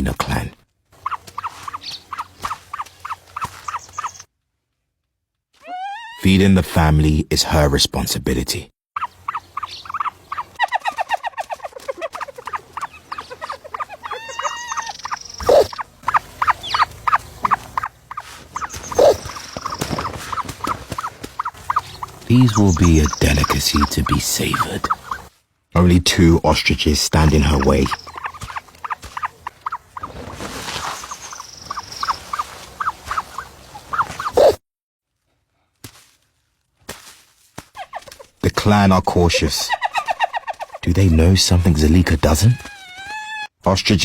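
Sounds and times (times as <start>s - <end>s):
ostrich chicks peeping: 1.0s - 4.3s, 9.0s - 25.3s, 27.2s - 34.6s.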